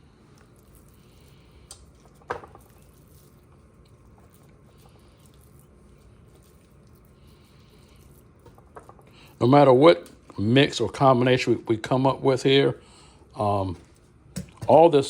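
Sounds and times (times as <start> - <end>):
hands squishing raw meat: 0.0 - 10.4.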